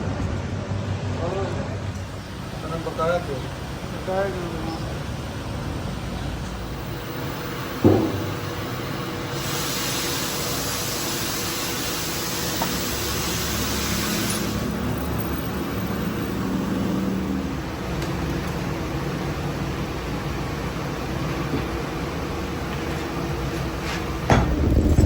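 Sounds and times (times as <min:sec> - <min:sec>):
even hiss: 0:06.9 - 0:17.3
sharp knock with ring: 0:07.8 - 0:08.3
low machine rumble: 0:14.6 - 0:25.0.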